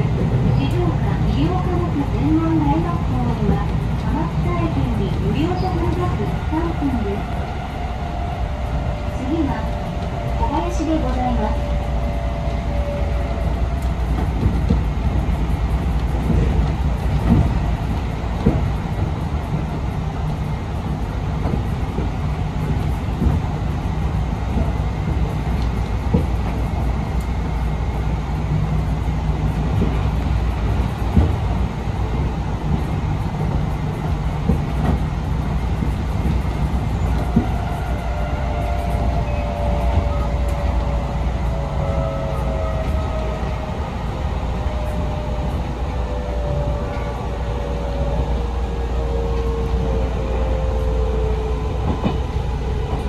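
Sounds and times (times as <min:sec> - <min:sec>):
electric train rumble: 0:00.0 - 0:53.0.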